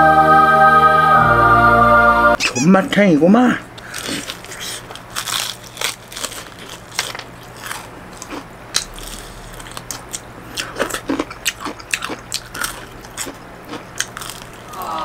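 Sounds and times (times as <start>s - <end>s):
crunchy chewing: 3.8s - 15.0s.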